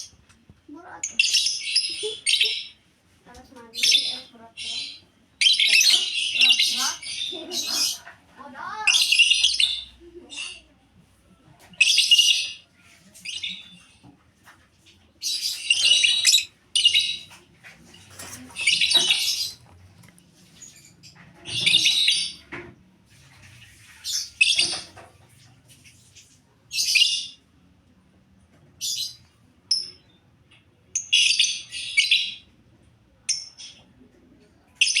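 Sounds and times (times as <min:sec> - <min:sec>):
lovebirds screeching and chirping: 0:03.8 - 0:10.6, 0:11.8 - 0:13.9, 0:15.2 - 0:22.5, 0:23.8 - 0:25.0.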